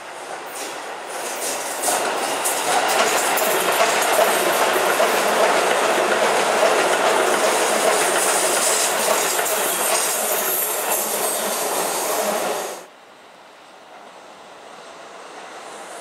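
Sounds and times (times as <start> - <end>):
electric train wheels clattering: 0.6 - 12.4.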